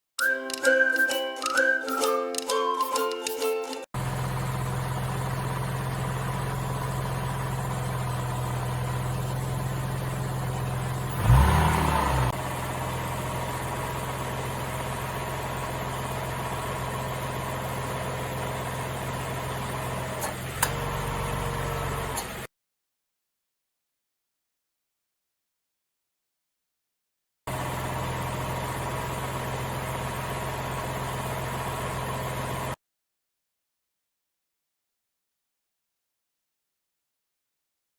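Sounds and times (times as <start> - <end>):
engine revving: 4.0 - 16.6
car engine idling: 4.0 - 22.5, 27.5 - 32.8.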